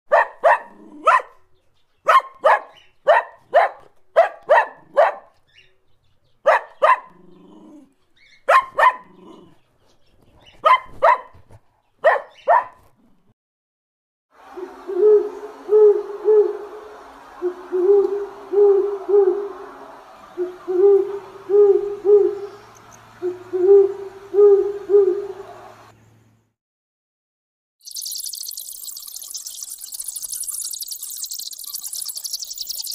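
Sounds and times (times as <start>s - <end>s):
puppy yapping: 8.5s - 9.2s, 12.0s - 12.8s
owl hooting: 14.5s - 19.6s, 20.4s - 22.6s, 23.2s - 25.5s.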